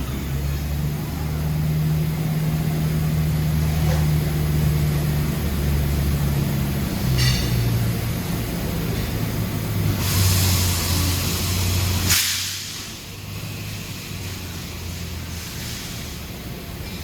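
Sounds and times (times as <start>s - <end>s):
air hissing: 9.8s - 16.3s.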